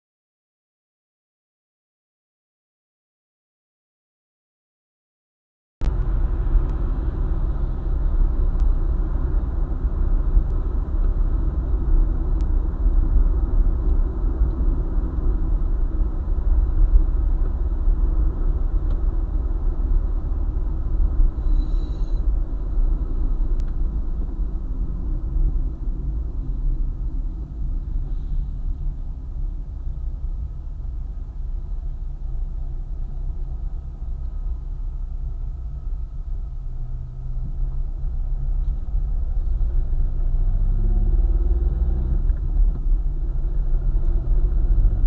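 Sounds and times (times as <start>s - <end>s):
car engine and tyre rumble: 5.8s - 45.0s.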